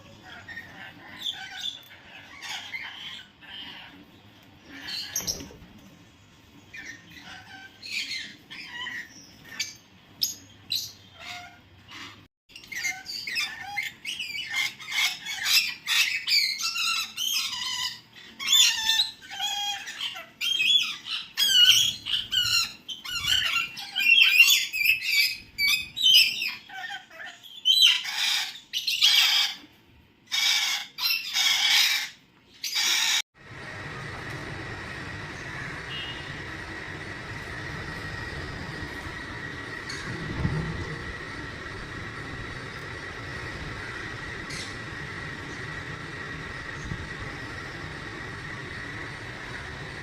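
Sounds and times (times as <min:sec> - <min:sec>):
pet birds chirping and squawking: 0:00.0 - 0:33.2, 0:35.4 - 0:50.0.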